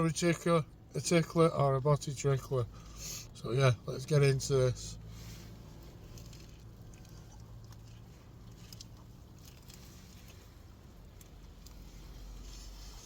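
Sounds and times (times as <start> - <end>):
low steady hum: 0.0 - 13.0
person chewing sandwich: 5.5 - 13.0.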